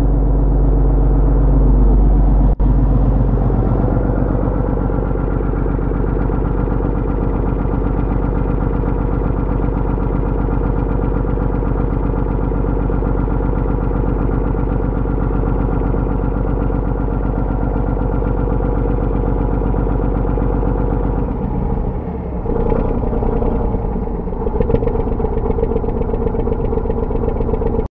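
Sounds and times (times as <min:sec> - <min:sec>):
boat engine idling: 0:00.0 - 0:27.9.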